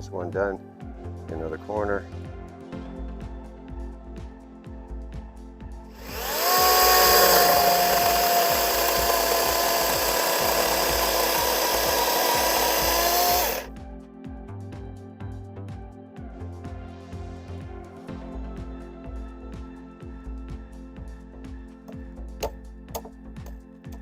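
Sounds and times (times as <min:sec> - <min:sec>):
quiet background music: 0:00.0 - 0:24.0
power drill running: 0:06.0 - 0:13.7.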